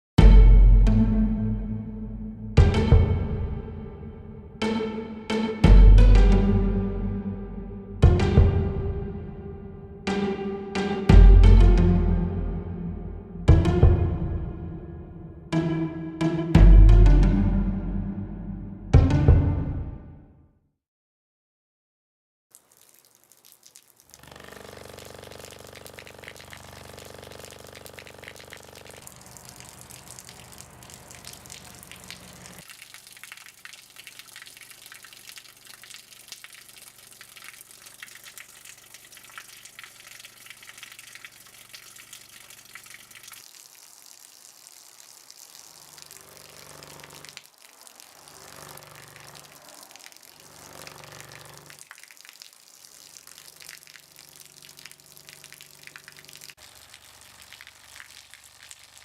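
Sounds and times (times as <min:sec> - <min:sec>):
water gushing: 0:22.5 - 0:59.0.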